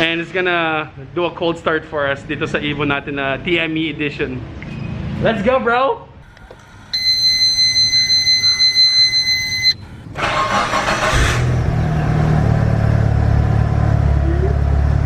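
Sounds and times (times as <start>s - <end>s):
high-pitched electronic warning tone: 6.2s - 10.0s
car engine cranking and idling: 6.2s - 15.0s.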